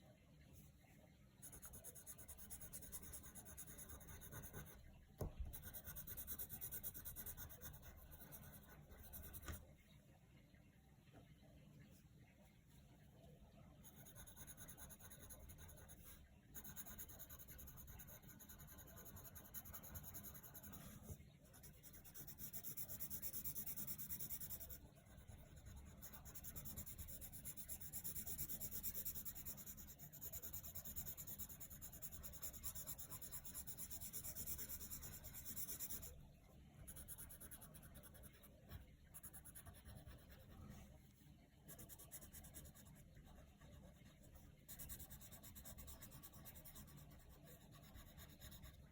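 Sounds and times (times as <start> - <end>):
faint water sound: 0.0 - 2.4, 6.4 - 17.2, 36.0 - 45.8
pencil scratching on paper: 1.4 - 4.8, 5.4 - 9.6, 13.8 - 36.2, 36.8 - 40.9, 41.6 - 48.9.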